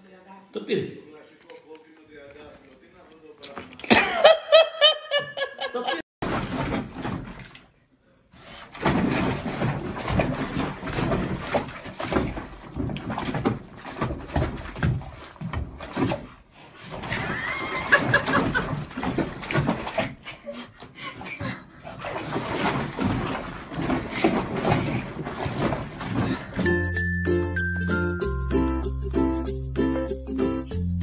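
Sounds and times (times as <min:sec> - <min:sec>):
dog splashing in bathtub: 0:06.2 - 0:07.8, 0:08.4 - 0:27.0.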